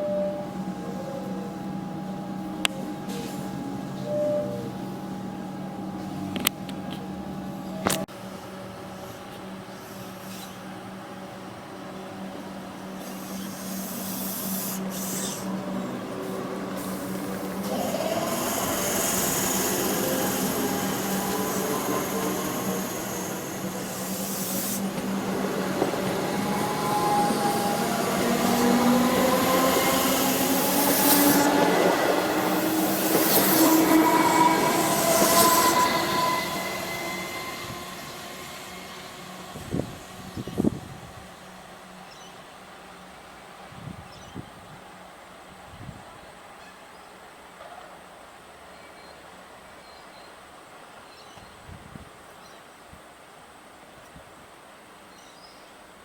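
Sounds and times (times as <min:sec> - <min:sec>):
electric train passing through station: 0:00.0 - 0:56.0
whining motor tones: 0:12.9 - 0:41.2.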